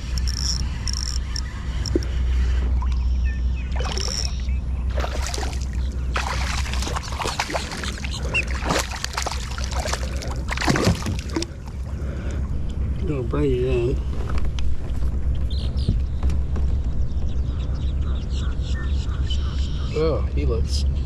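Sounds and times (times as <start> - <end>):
low rumble: 0.0 - 19.8
water splashing against kayak: 4.9 - 12.0.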